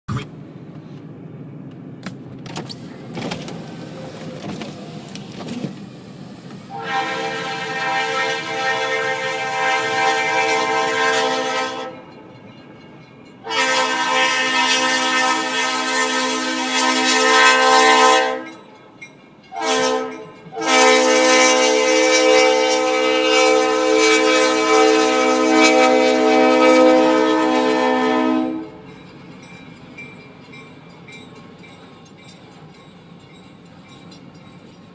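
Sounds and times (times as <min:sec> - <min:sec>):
train rumble with clicks: 0:00.1 - 0:34.9
locomotive air horn chord: 0:06.7 - 0:12.2, 0:13.4 - 0:18.7, 0:19.5 - 0:28.8.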